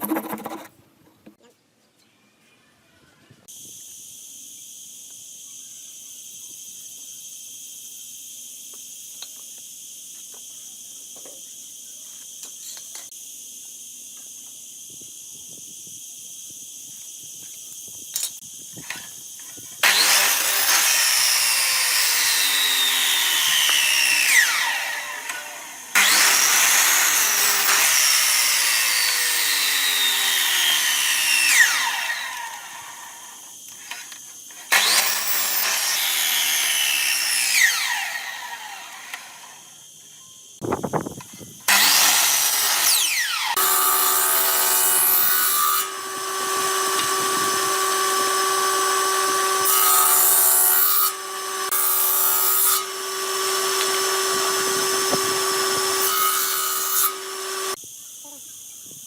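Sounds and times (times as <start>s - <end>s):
power tool whining through wood: 19.8s - 39.6s, 41.7s - 57.8s.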